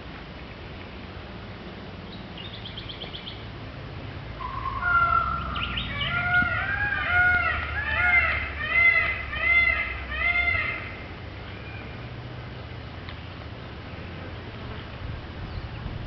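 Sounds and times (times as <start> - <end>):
bird trilling: 4.4 - 10.8
bird calls rising and falling: 4.4 - 12.0.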